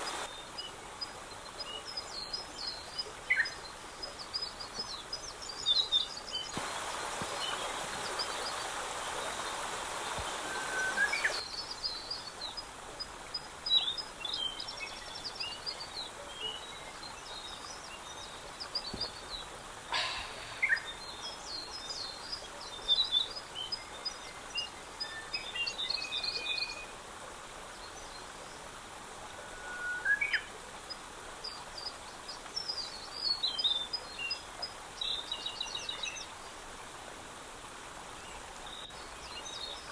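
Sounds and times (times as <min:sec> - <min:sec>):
rushing hiss: 0:00.0 - 0:00.3, 0:06.5 - 0:11.4, 0:18.9 - 0:21.1
songbirds singing and chirping: 0:00.0 - 0:37.0, 0:37.9 - 0:39.9.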